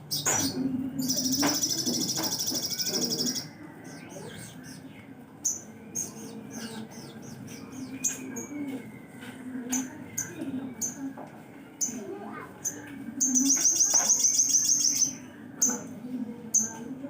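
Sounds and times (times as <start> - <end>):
bird singing with fast rattle: 0.1 - 3.5, 12.6 - 15.8.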